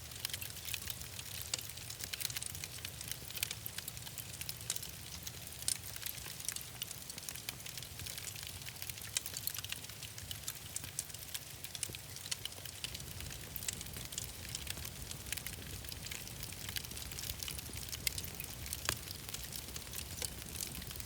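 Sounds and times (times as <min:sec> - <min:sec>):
wood fire crackling: 0:00.0 - 0:21.0
low rumble of flames: 0:00.1 - 0:21.0.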